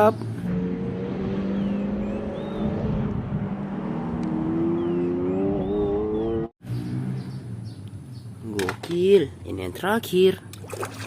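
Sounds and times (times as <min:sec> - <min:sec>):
car engine revving: 0:00.4 - 0:07.8.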